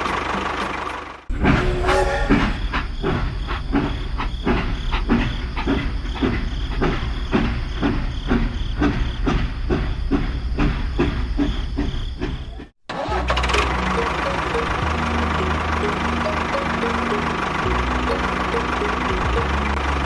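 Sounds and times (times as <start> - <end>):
small machine chugging: 0.0 - 20.0
low motor hum: 13.4 - 20.0.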